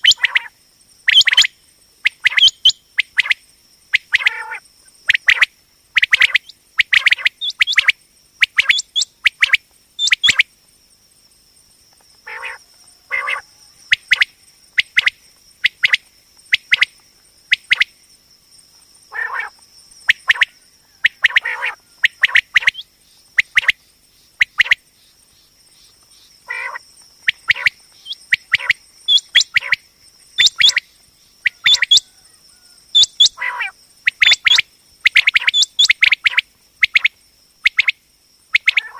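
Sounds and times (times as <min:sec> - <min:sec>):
quail calling: 0:00.0 - 0:00.5, 0:01.1 - 0:01.5, 0:04.0 - 0:04.6, 0:05.2 - 0:10.4, 0:12.2 - 0:14.2, 0:19.1 - 0:19.5, 0:20.2 - 0:22.8, 0:26.5 - 0:29.8, 0:30.4 - 0:30.8, 0:31.4 - 0:37.0, 0:38.6 - 0:38.9.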